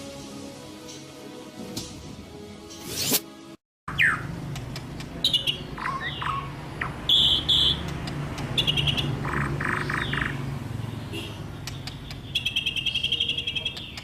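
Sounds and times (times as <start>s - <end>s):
bird singing whistled notes: 8.6s - 10.4s, 12.2s - 14.0s.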